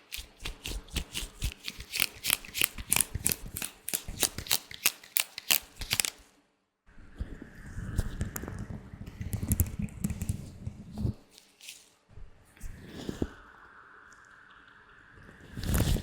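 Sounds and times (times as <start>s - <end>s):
latex gloves rubbing rustle: 0.0s - 6.2s, 10.9s - 12.0s
latex gloves snapping: 0.0s - 6.2s.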